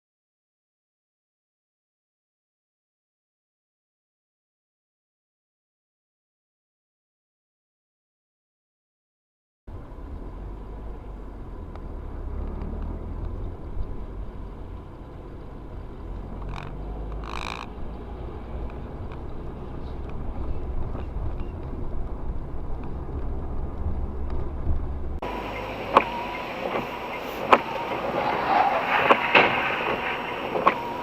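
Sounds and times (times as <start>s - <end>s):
car driving rumble: 9.7s - 31.0s
high-pitched tone: 25.2s - 31.0s.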